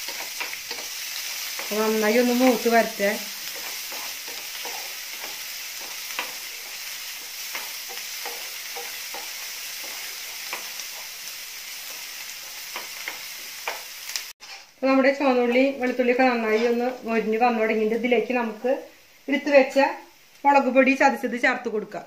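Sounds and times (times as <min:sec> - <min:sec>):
garlic sizzling in hot oil: 0:00.0 - 0:22.0
wooden spatula scraping pan: 0:14.4 - 0:14.8.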